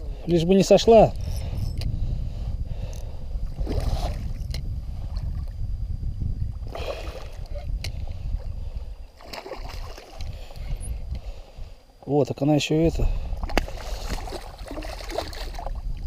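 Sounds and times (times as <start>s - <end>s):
wind rumble on microphone: 0.0s - 16.0s
water splashing: 9.2s - 10.3s, 13.4s - 15.8s.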